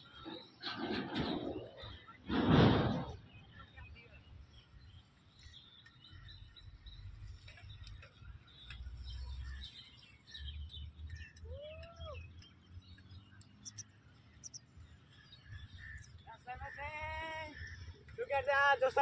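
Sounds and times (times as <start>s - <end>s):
birds chirping: 0.0s - 19.0s
drawn-out bird call: 4.2s - 19.0s.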